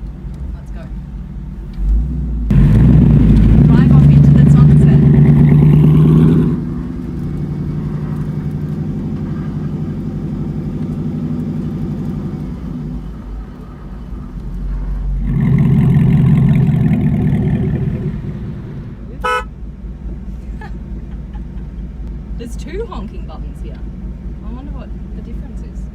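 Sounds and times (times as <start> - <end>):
car engine running: 0.0 - 25.9
car horn beep: 19.2 - 19.6.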